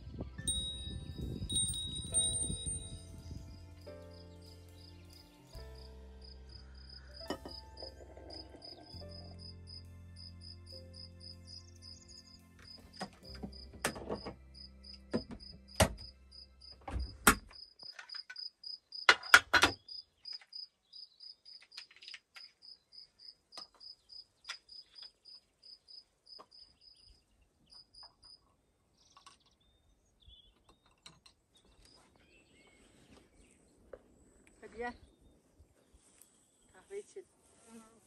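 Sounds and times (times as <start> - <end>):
cricket chirping: 2.1 - 28.4.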